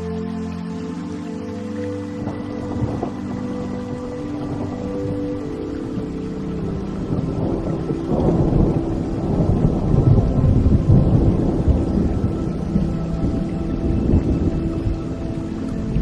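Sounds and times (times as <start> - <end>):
soft background music: 0.0 - 16.0
steady rain: 0.0 - 16.0
rolling thunder: 7.0 - 15.0.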